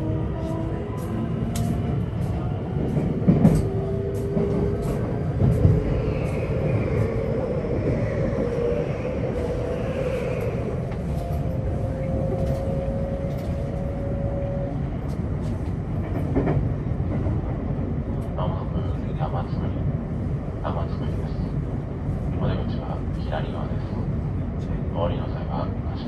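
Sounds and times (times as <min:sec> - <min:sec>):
train wheels rumbling on rail: 0:00.0 - 0:26.0
rail clicks: 0:00.4 - 0:18.6.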